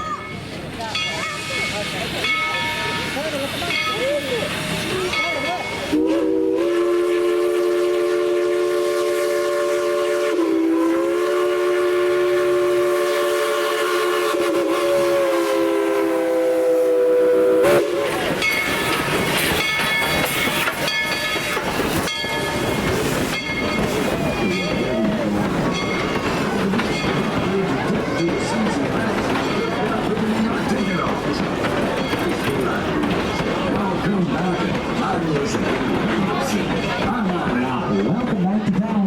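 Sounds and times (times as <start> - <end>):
train clattering on rails: 0.0 - 9.1, 17.1 - 39.0
chime steam whistle: 4.7 - 25.1.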